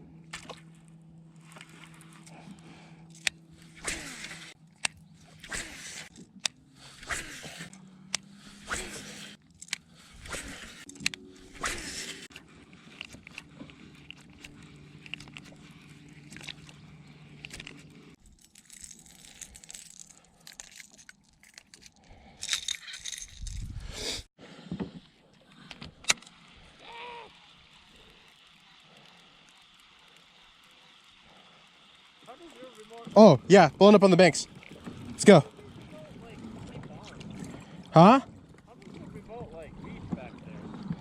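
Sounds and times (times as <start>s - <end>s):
fishing tackle rattling: 12.9s - 23.8s.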